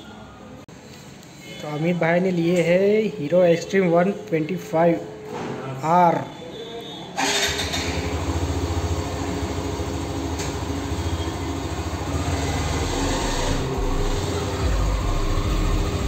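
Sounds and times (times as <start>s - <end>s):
motorcycle engine idling: 7.5s - 16.0s.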